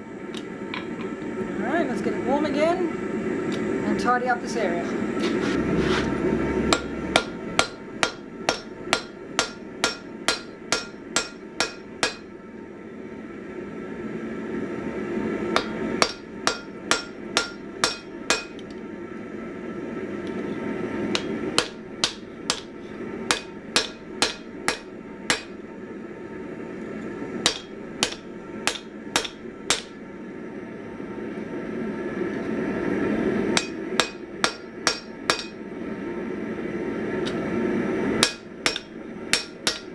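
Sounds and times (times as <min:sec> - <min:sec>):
low rumble: 0:04.9 - 0:09.4
hammer striking steel on anvil: 0:06.7 - 0:12.4, 0:15.5 - 0:18.8, 0:21.1 - 0:25.6, 0:27.4 - 0:30.0, 0:33.6 - 0:35.7, 0:38.2 - 0:39.9.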